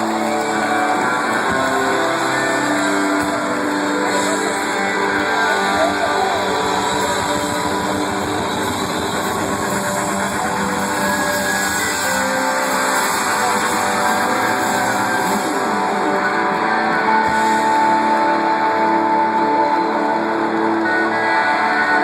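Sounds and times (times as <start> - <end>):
distorted electric guitars: 0.0 - 22.0
loud rock band: 0.0 - 22.0.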